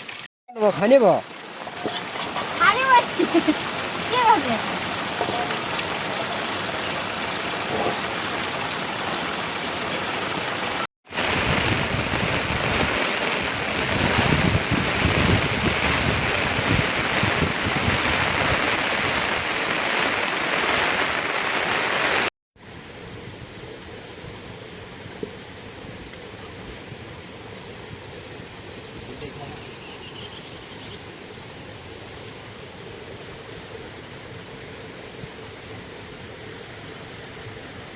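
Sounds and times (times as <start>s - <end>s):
heavy rain falling: 0.0s - 22.3s.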